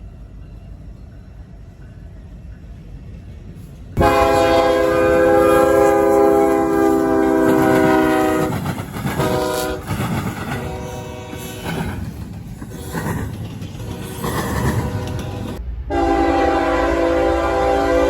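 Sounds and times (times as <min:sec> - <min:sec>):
train rumble and wheel clatter: 0:00.0 - 0:18.0
train air horn blasts: 0:04.0 - 0:08.6, 0:09.2 - 0:09.9, 0:10.6 - 0:11.8, 0:13.8 - 0:18.0.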